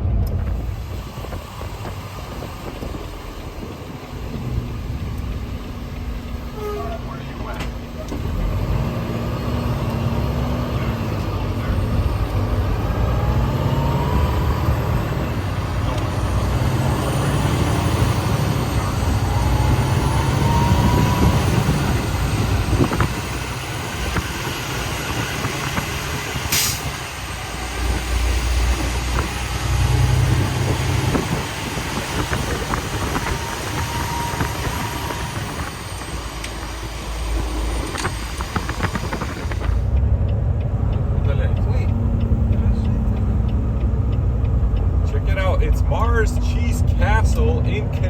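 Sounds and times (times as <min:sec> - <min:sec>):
truck engine and road rumble: 0:00.0 - 0:48.0
air hiss: 0:26.5 - 0:27.0.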